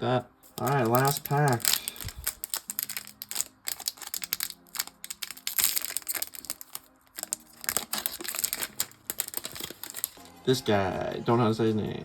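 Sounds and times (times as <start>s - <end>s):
plastic wrapper crinkling: 0.4s - 10.4s.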